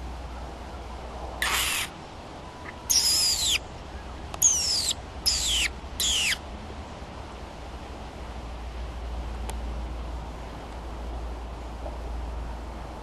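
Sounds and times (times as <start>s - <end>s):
bird calling with falling whistle: 1.4s - 1.9s, 2.6s - 6.4s.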